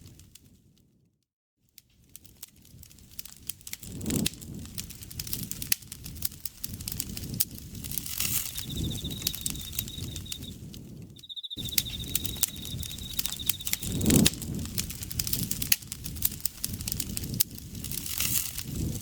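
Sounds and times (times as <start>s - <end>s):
campfire crackling and popping: 2.2s - 11.0s, 11.6s - 19.0s
insect trilling: 8.2s - 10.6s, 11.2s - 14.2s.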